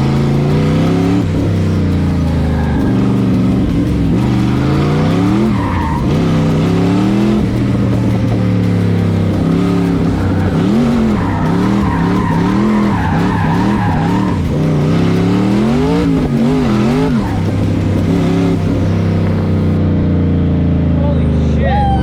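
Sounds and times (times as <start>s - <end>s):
tires squealing: 0.0s - 19.8s
car engine revving: 0.0s - 21.0s.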